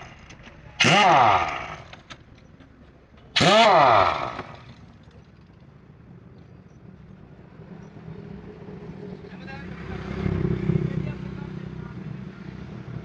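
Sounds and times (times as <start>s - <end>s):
impact wrench bursts: 0.0s - 2.2s, 3.3s - 4.8s.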